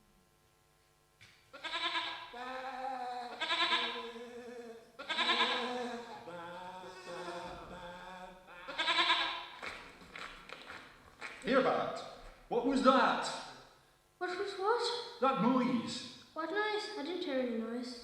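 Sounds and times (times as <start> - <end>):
sheep bleating: 1.5 - 9.6.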